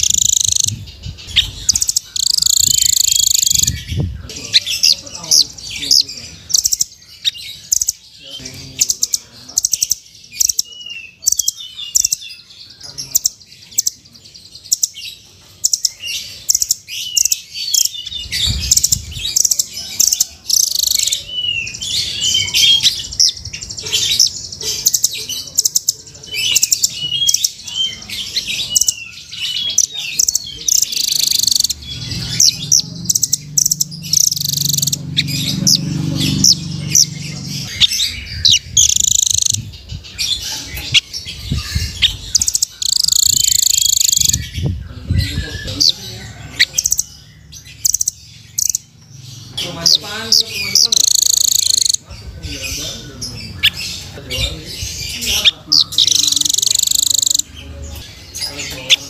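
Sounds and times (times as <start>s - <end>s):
nuthatch high chirps: 0.0s - 59.0s.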